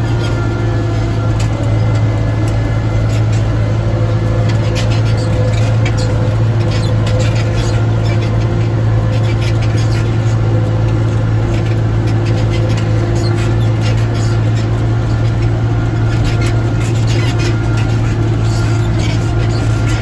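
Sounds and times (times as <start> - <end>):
tractor engine droning: 0.0 - 20.0.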